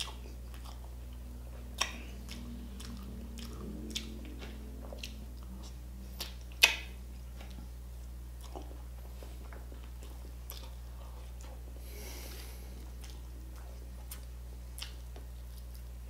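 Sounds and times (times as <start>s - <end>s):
close chewing: 0.0s - 16.0s
steady low hum: 0.0s - 16.0s
mouth clicks and smacks: 1.8s - 7.6s.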